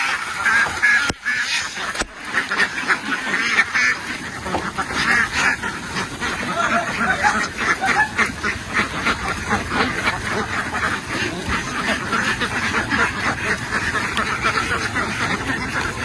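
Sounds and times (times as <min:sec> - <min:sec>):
flock of ducks quacking: 0:00.0 - 0:16.0.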